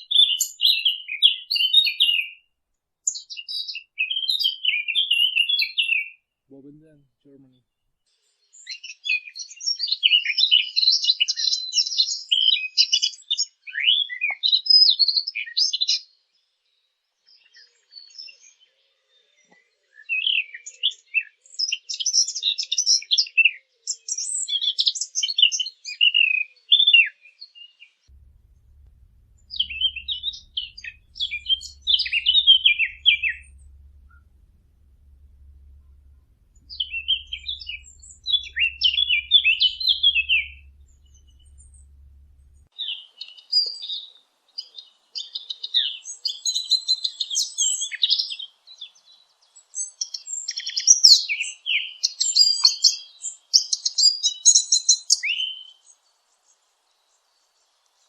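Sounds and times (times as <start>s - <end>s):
birds chirping and twittering: 28.1s - 42.7s.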